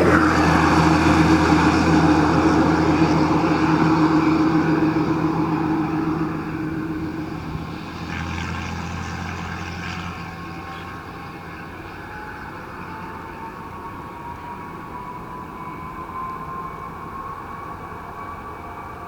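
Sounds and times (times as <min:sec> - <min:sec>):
faint rising whine: 0:00.0 - 0:10.6
jet engine rumble: 0:00.0 - 0:11.2.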